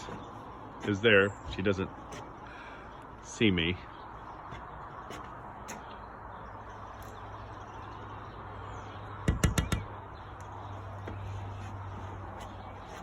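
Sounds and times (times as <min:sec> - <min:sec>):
outdoor background noise: 0:00.0 - 0:13.0
sharp knocks: 0:09.2 - 0:10.0.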